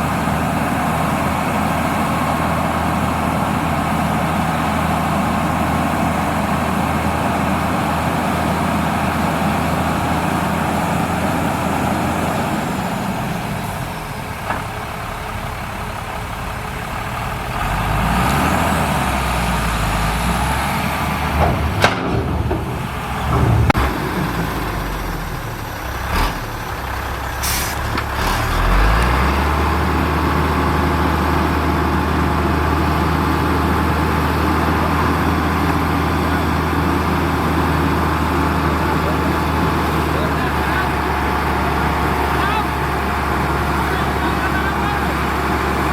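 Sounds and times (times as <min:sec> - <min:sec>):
diesel machinery engine: 0:00.0 - 0:45.9
metal clanks: 0:21.4 - 0:24.0
short air hisses: 0:27.4 - 0:27.9.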